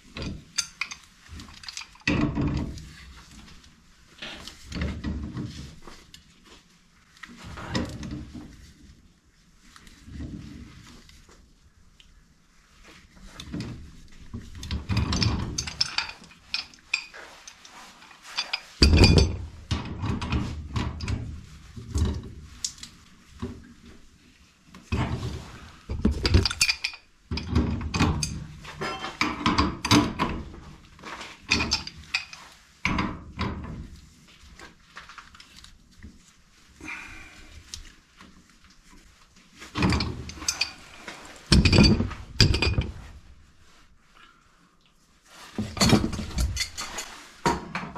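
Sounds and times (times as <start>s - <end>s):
metal tools clanking: 28.1s - 30.2s, 39.8s - 43.0s, 45.7s - 47.2s.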